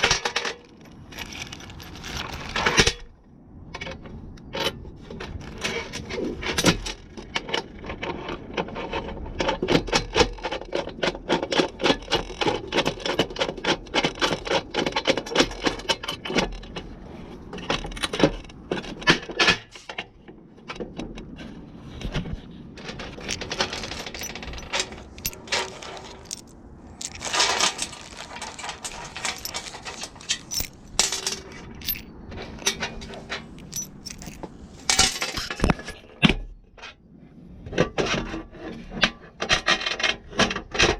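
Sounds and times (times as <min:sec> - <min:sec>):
metal parts and tools clinking: 0:22.8 - 0:36.2.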